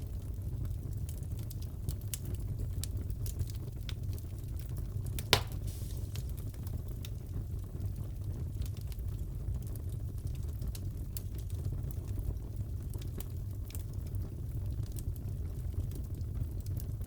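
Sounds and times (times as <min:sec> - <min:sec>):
loud crack of fire: 0:00.0 - 0:17.0
wood fire crackling: 0:00.0 - 0:17.0
fire pops: 0:01.1 - 0:09.1.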